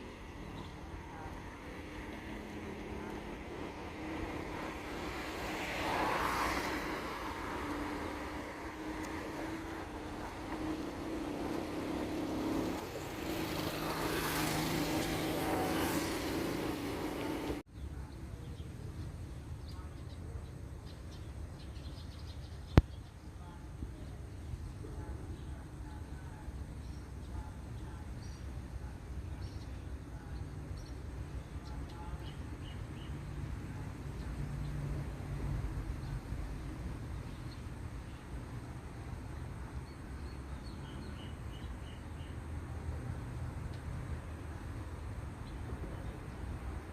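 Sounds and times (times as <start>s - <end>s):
tyre noise of passing vehicle: 0.0s - 17.7s, 27.6s - 46.9s
vehicle engine humming: 0.0s - 17.7s
low outdoor rumble: 0.0s - 46.9s.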